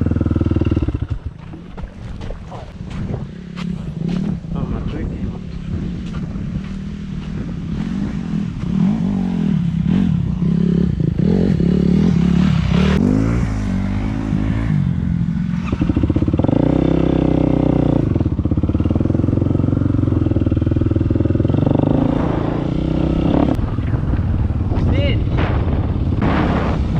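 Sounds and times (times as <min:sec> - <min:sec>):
dirt bike engine revving: 0:00.0 - 0:01.4, 0:05.8 - 0:24.0.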